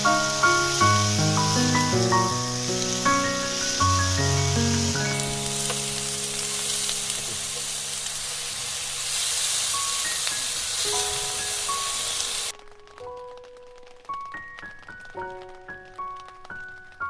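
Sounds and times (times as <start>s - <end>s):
soft background music: 0.0s - 7.8s, 9.2s - 17.0s
food sizzling in a pan: 0.0s - 12.6s.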